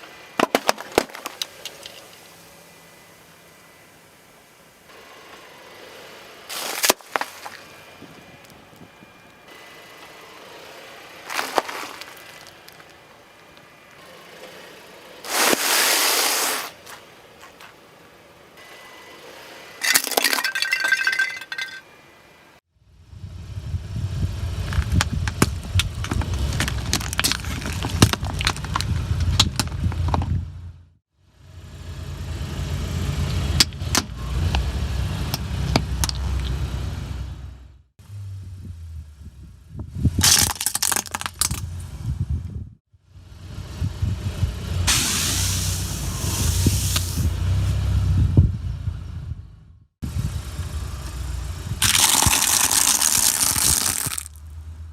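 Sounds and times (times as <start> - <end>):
car engine and tyre rumble: 0.0 - 54.9
objects cracking under wheels: 24.7 - 30.3, 40.2 - 41.7, 51.8 - 54.4.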